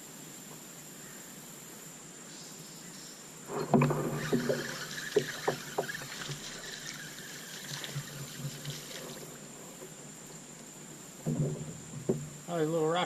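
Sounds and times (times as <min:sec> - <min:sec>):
knocking on a kayak: 0:11.2 - 0:12.5.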